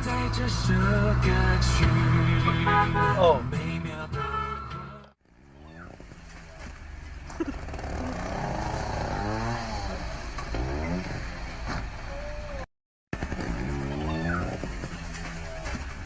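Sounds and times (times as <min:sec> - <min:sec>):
vehicle engine revving: 0:05.2 - 0:16.0.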